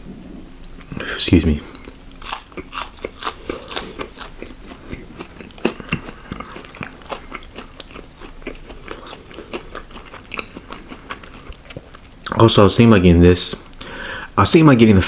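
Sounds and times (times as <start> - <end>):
chewing crispy food: 0.7 - 12.6.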